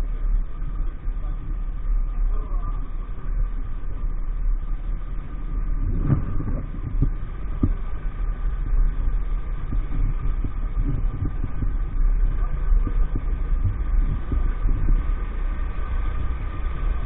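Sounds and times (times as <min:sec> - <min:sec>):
heavy low rumble: 0:00.0 - 0:17.0.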